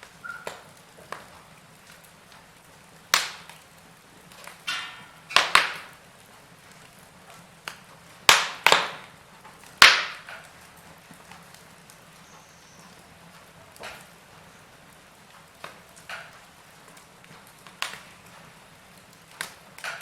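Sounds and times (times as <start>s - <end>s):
wood fire crackling: 0.0s - 20.0s
sharp loud pops of fire: 3.1s - 3.7s, 4.4s - 6.0s, 7.6s - 10.6s.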